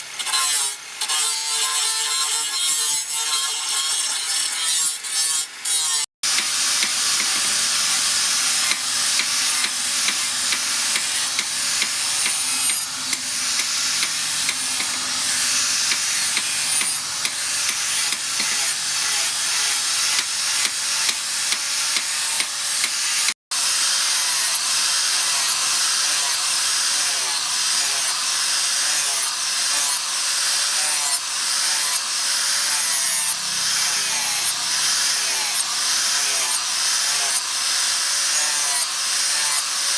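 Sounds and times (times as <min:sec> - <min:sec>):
rasping strokes on knife blade: 0:06.3 - 0:22.4.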